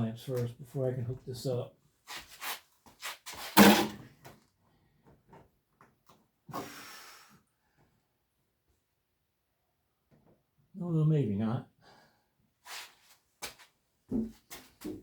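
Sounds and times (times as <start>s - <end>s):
scrape or rustle: 2.1s - 3.7s, 12.7s - 13.6s.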